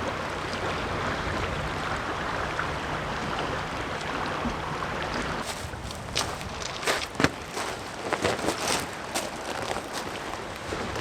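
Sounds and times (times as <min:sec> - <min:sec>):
light breeze: 0:00.0 - 0:11.0
waves washing against rocks: 0:05.4 - 0:11.0.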